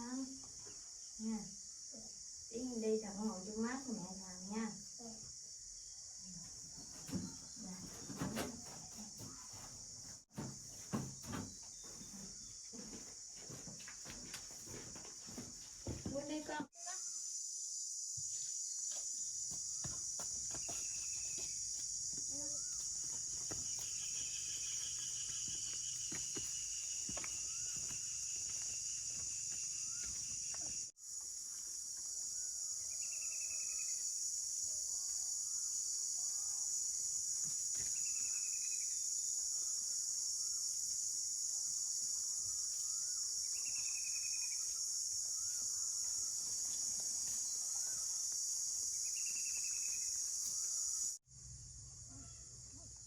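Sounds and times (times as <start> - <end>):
high-pitched insect chorus: 0.0 - 53.0.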